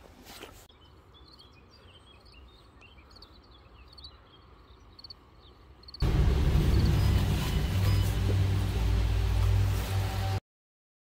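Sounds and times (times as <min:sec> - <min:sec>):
small birds chirping: 0:00.6 - 0:06.0
low steady rumble: 0:06.0 - 0:10.4.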